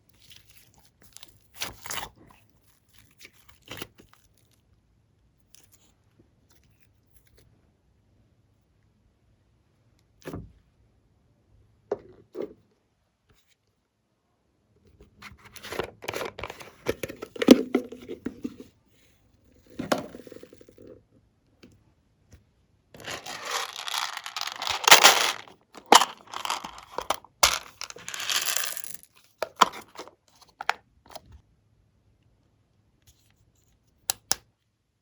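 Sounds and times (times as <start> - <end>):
tearing and crinkling: 23.0 - 30.1.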